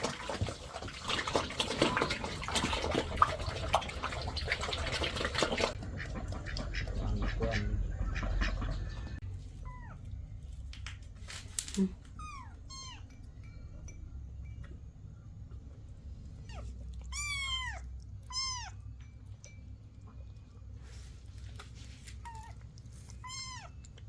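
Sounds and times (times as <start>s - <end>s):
kittens meowing: 9.6s - 10.1s, 12.1s - 13.1s, 16.4s - 18.9s, 22.2s - 24.0s.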